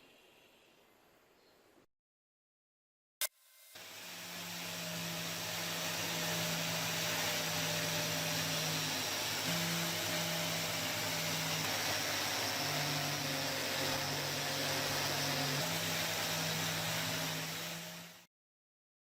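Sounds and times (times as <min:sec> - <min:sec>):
small power tool whirring: 0:03.2 - 0:18.3.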